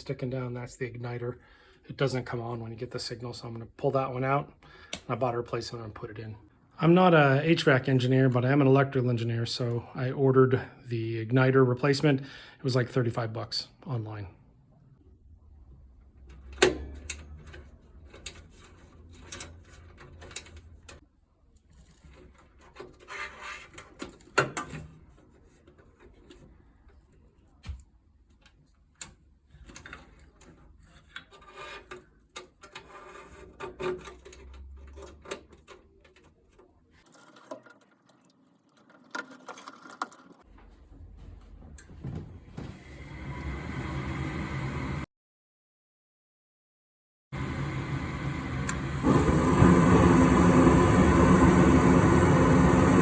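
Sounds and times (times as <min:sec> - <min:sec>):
scraping and rubbing: 0:17.5 - 0:21.0, 0:21.6 - 0:24.3, 0:29.5 - 0:38.2.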